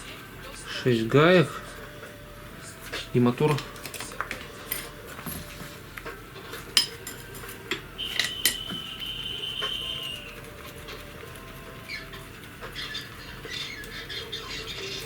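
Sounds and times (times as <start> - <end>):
high squeal: 8.0 - 10.4.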